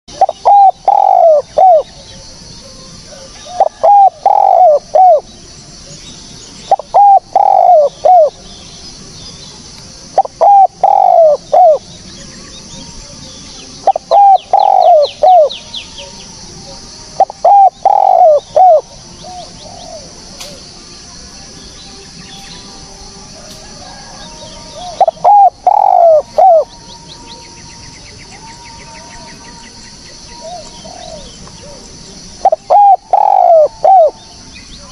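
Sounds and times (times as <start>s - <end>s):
dove cooing: 0.1s - 5.3s, 6.7s - 8.4s, 10.1s - 11.8s, 13.8s - 20.7s, 23.2s - 27.4s, 30.3s - 34.9s.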